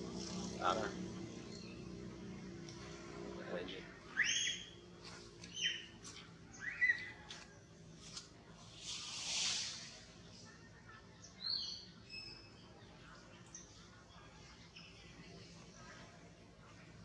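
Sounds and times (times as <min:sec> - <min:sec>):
birds chirping: 0:00.0 - 0:07.6
high whistled bird notes: 0:04.1 - 0:04.8
brief hiss: 0:08.7 - 0:10.2.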